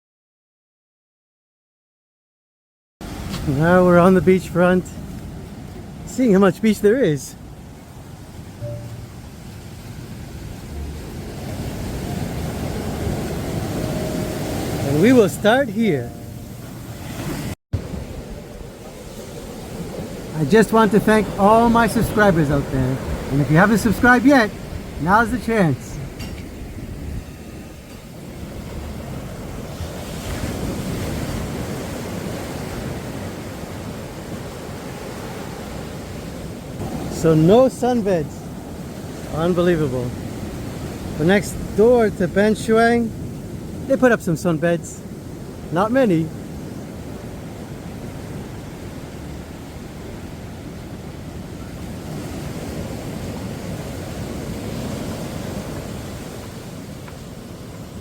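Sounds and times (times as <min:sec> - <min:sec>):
surf breaking on beach: 0:03.0 - 0:58.0
wind buffeting microphone: 0:07.4 - 0:39.3.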